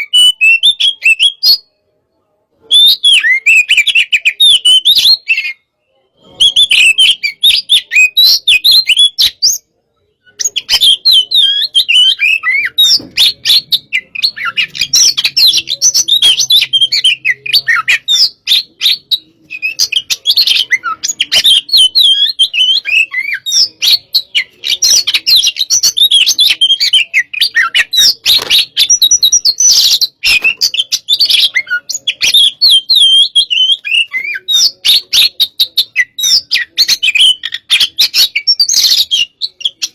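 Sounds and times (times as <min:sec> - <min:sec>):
bird singing high chirps and warbles: 0:00.0 - 0:39.9.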